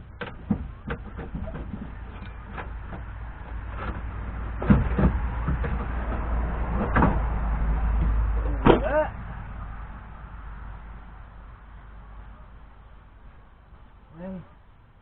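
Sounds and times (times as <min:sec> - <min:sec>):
low rumbling scrape: 0:00.0 - 0:14.8
knocks on engine: 0:00.2 - 0:09.0.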